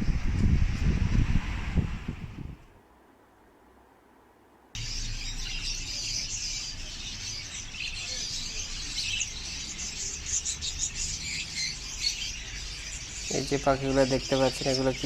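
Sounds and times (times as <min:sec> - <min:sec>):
small birds chirping: 0:04.8 - 0:15.0.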